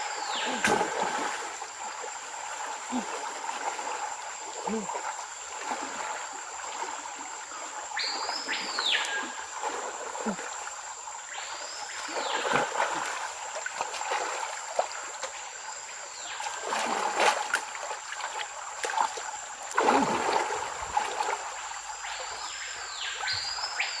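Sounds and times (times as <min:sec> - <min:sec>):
water noise: 0:00.0 - 0:24.0
whistled calls: 0:08.0 - 0:09.4.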